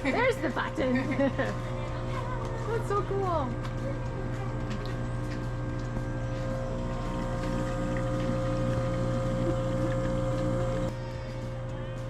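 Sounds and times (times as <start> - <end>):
dispenser pump humming: 0.0 - 12.0.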